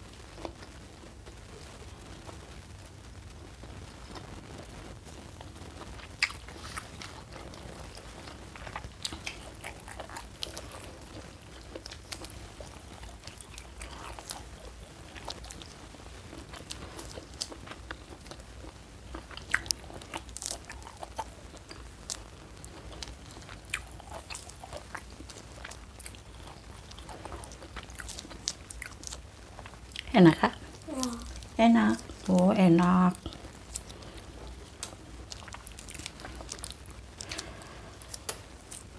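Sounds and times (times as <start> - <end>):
chewing: 6.0 - 38.9.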